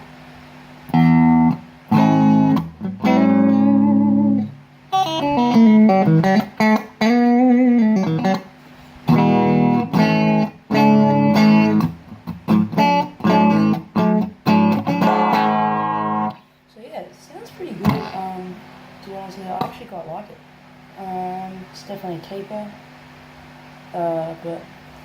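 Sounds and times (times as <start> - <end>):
electric guitar chords and notes: 0.8 - 16.5, 17.8 - 18.4.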